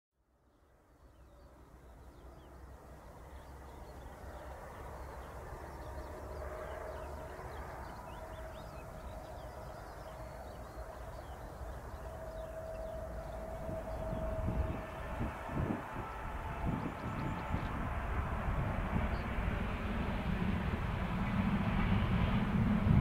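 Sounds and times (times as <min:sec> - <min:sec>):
distant train rumbling: 0:00.7 - 0:23.0
small birds chirping: 0:01.0 - 0:14.3.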